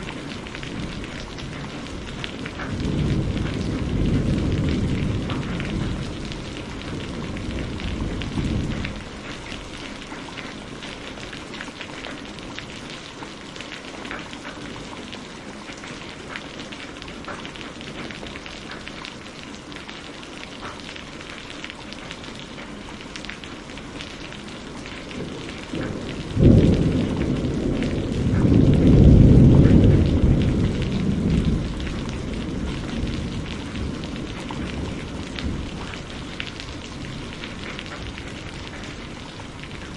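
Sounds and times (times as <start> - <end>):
thunder rumbling: 0.0 - 11.5, 24.2 - 39.9
heavy rain pattering: 0.0 - 39.9
loud thunderclap: 0.6 - 9.1, 25.1 - 39.0.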